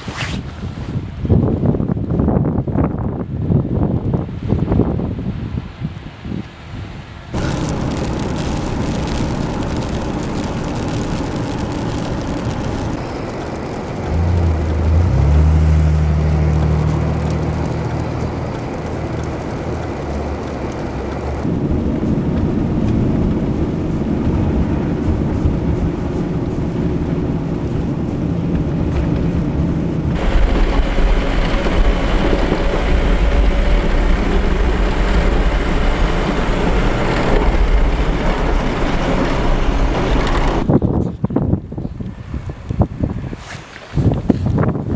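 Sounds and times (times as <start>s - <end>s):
wind on microphone: 0.0s - 44.9s
vehicle engine and tyre noise: 7.3s - 44.9s
engine low hum: 7.4s - 40.7s.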